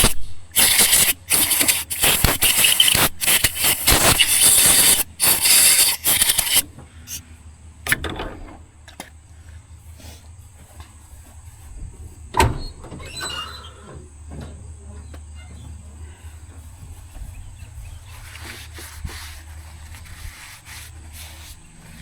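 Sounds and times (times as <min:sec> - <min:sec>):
grinder grinding metal: 0:00.0 - 0:07.2.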